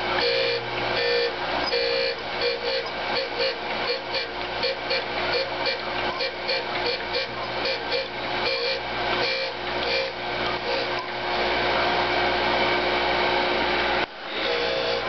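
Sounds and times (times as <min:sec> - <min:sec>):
grinding wheel hiss: 0:00.0 - 0:11.6, 0:14.2 - 0:15.0
motor hum: 0:00.0 - 0:15.0.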